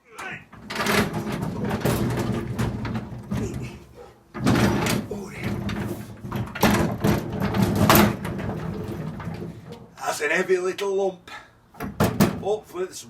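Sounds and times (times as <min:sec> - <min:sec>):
heavy item knocking and scraping: 0:00.4 - 0:09.9
loud clatter: 0:00.5 - 0:03.8, 0:04.4 - 0:09.8.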